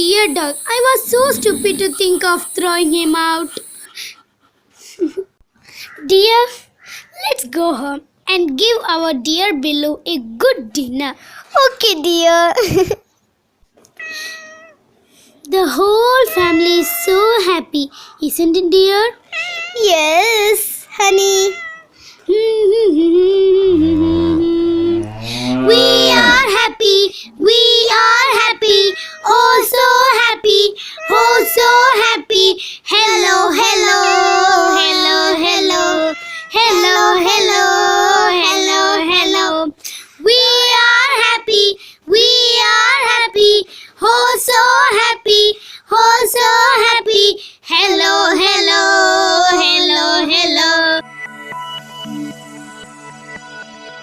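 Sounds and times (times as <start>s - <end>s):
child singing: 0.0s - 3.6s, 15.5s - 19.1s, 22.3s - 25.0s, 25.7s - 51.0s.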